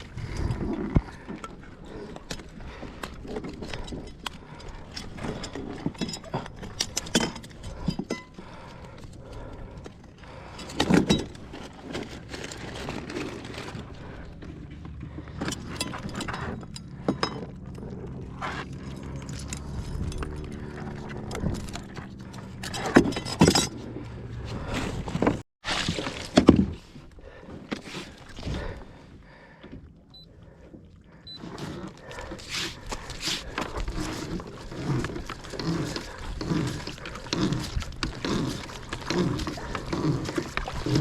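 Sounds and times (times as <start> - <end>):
gear knocking and clinking: 2.2 - 24.4.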